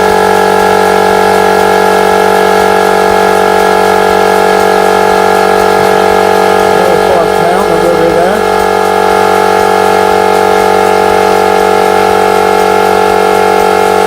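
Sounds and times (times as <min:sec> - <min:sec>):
air compressor running: 0:00.0 - 0:14.0.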